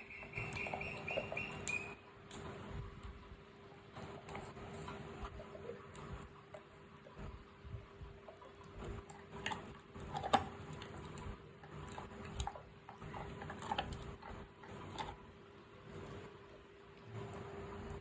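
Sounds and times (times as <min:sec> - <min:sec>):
dog chewing meat: 0:00.0 - 0:18.0.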